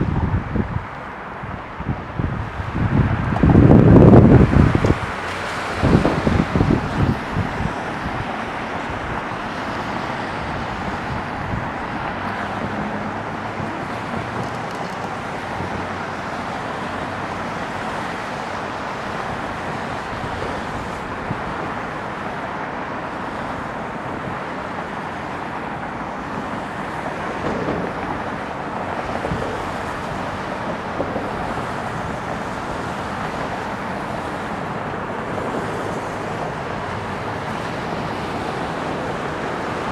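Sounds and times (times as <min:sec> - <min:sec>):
wind on microphone: 0:00.0 - 0:22.4, 0:25.8 - 0:39.9
distant road traffic hum: 0:00.0 - 0:39.9.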